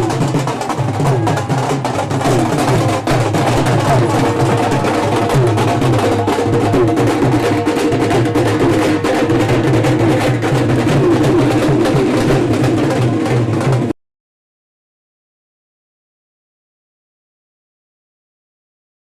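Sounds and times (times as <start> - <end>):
drums beating busily: 0.0 - 14.0
wavering melody line: 2.2 - 12.8.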